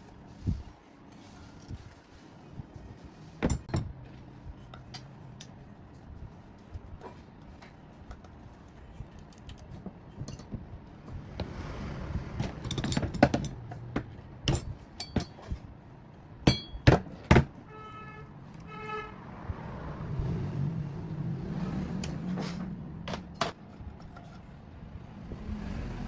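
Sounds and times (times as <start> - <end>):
metal tools clinking: 12.4 - 13.9, 14.5 - 15.6, 16.5 - 16.9.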